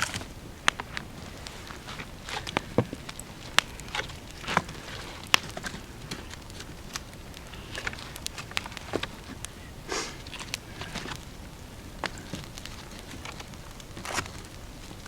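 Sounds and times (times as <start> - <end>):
dry wood snapping and crackling: 0.0 - 15.0
leaves rustling: 0.0 - 15.0.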